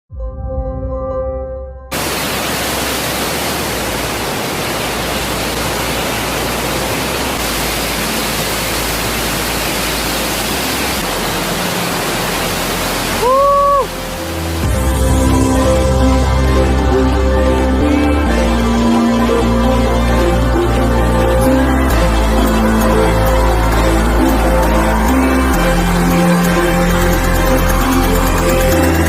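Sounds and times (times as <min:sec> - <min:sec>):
waterfall rushing: 0:01.9 - 0:29.0.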